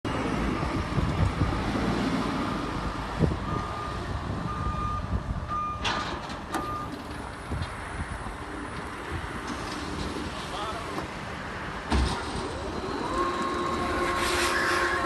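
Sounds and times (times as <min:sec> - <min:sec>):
baler machinery running: 0:11.9 - 0:15.0.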